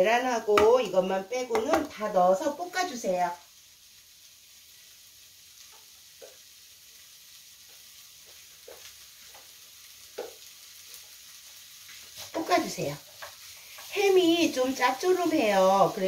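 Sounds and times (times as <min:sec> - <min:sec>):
food sizzling in oil: 0:00.0 - 0:16.0
oil popping: 0:10.1 - 0:10.4.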